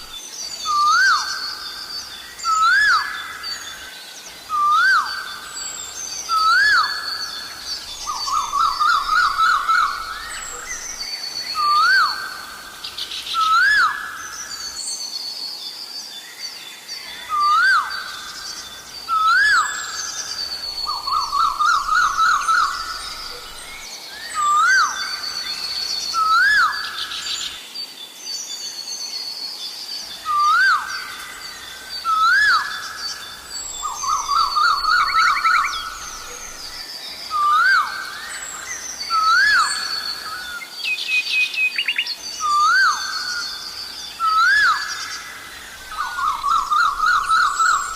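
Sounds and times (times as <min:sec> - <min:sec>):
birds chirping: 0:00.0 - 0:14.8, 0:17.1 - 0:27.6, 0:30.0 - 0:47.9.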